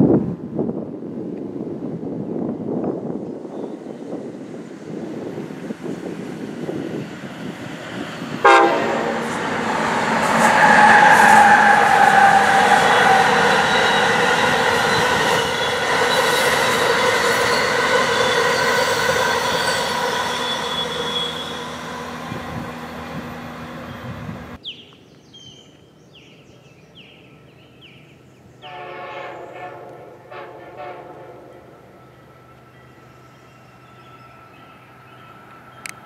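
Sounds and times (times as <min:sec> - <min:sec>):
rumble of passing train cars: 0:00.0 - 0:36.0
train horn blowing: 0:08.4 - 0:23.2, 0:28.6 - 0:31.8.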